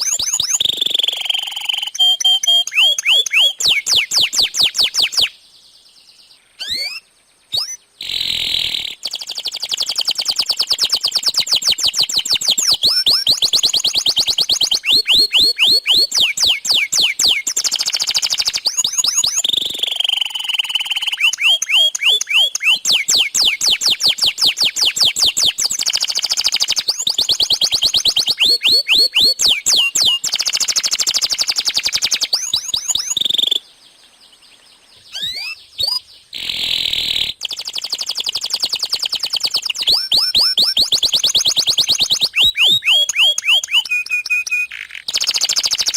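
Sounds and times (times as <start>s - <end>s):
canary singing rapid trills: 0.0s - 45.9s.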